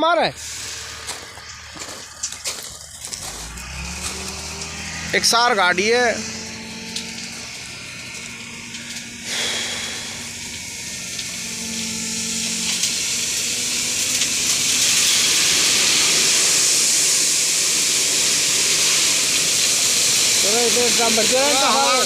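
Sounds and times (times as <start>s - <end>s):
truck engine humming: 0.0s - 22.0s
stone dust pouring off truck bed: 14.0s - 21.4s.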